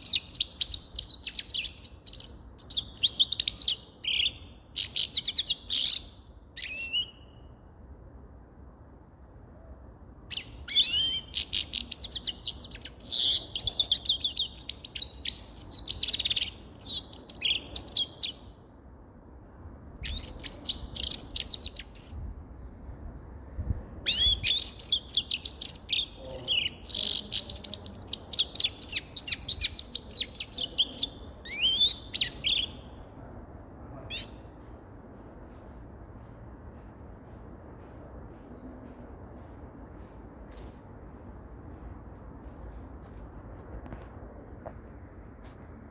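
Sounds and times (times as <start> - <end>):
finch twittering song: 0.0 - 7.4, 10.3 - 18.5, 20.0 - 22.7, 24.1 - 33.0, 34.0 - 34.6.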